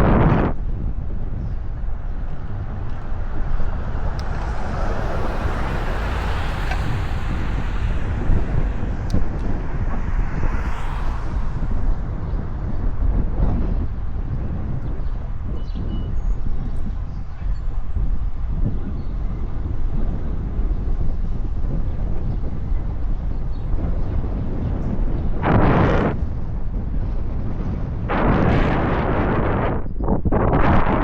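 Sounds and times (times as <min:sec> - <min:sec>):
wind rumbling on microphone: 0:00.0 - 0:31.0
car passing: 0:00.6 - 0:14.6.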